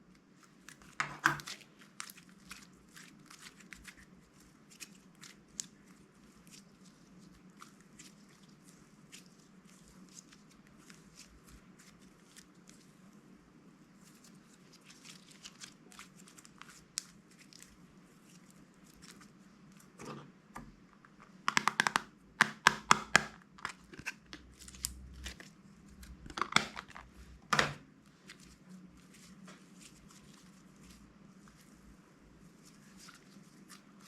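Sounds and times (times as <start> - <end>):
crunchy slime crackling: 21.1 - 27.4.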